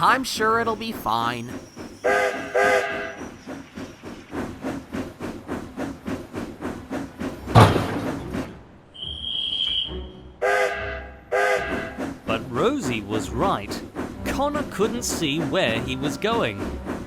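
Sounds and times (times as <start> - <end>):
steam locomotive chuffing: 0.0 - 8.7, 11.2 - 17.0
short high whistle-like tone: 9.0 - 10.0.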